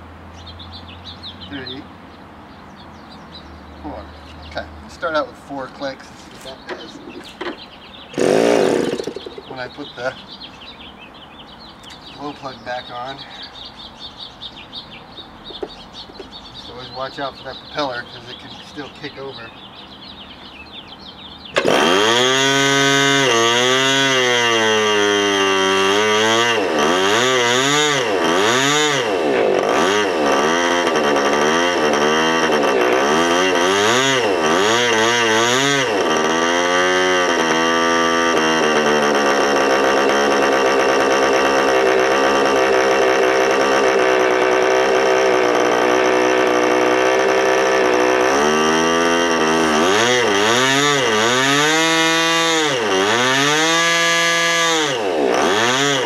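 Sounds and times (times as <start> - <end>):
model engine revving: 6.4 - 10.1, 21.6 - 56.0.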